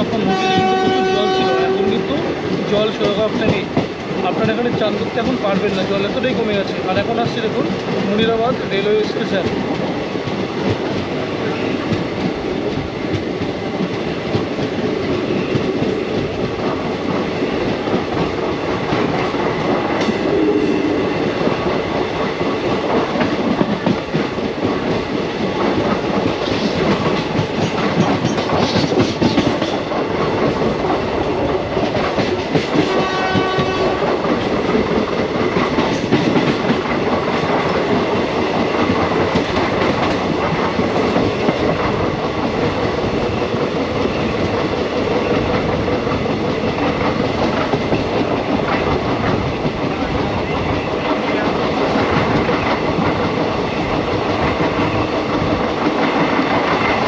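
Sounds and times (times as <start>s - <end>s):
train wheels rumbling on track: 0.0s - 57.0s
train horn: 0.2s - 2.1s, 20.4s - 21.3s, 32.8s - 34.2s.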